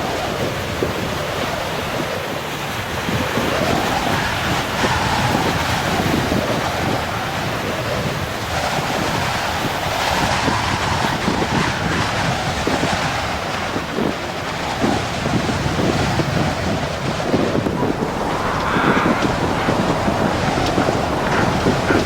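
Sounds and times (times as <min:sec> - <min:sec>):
wind buffeting microphone: 0:00.0 - 0:22.0
ocean surf breaking: 0:15.5 - 0:22.0.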